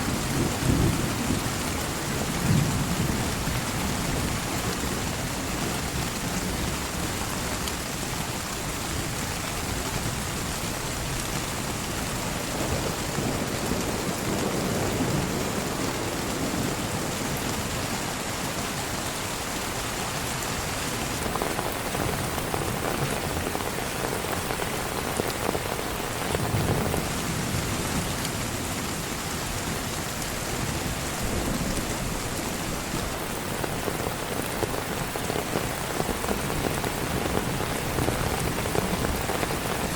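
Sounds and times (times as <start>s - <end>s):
heavy rain falling: 0.0s - 39.9s
thunder rumbling: 21.1s - 39.9s.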